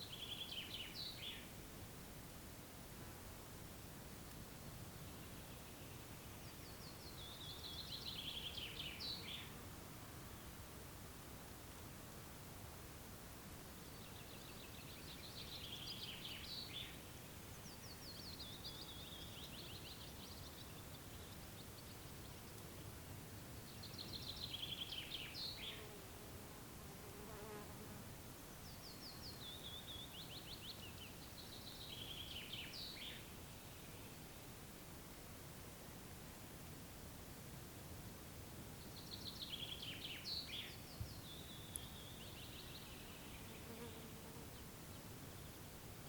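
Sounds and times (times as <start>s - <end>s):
songbird singing: 0.0s - 1.6s, 4.2s - 10.6s, 13.6s - 26.2s, 28.5s - 34.5s, 38.7s - 46.0s
insects buzzing faintly: 0.0s - 46.0s.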